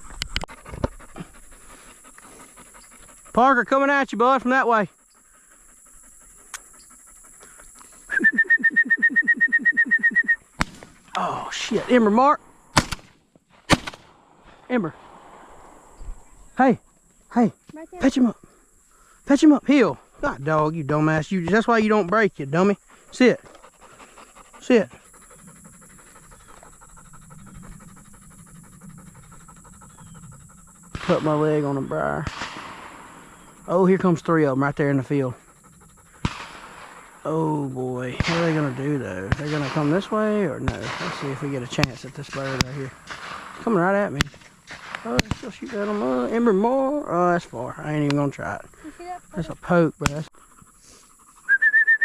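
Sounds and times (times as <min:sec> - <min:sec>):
dog panting: 0:00.0 - 0:08.2, 0:16.0 - 0:32.3, 0:33.1 - 0:51.6.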